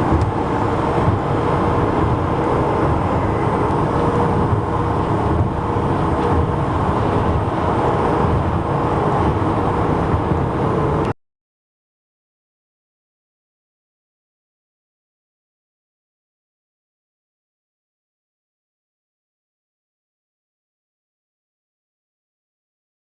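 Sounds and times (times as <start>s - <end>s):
highway traffic: 0.0s - 11.2s
trucks and cars passing: 0.0s - 11.2s.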